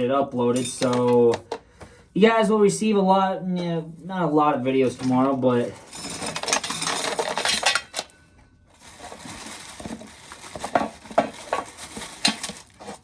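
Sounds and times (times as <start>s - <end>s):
corn kernels rattling: 5.7s - 8.1s, 8.8s - 13.0s.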